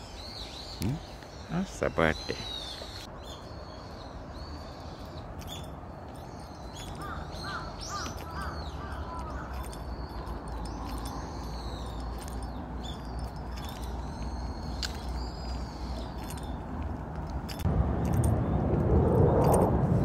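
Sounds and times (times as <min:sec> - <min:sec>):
birds chirping: 0:00.0 - 0:20.0
low steady rumble: 0:17.2 - 0:20.0.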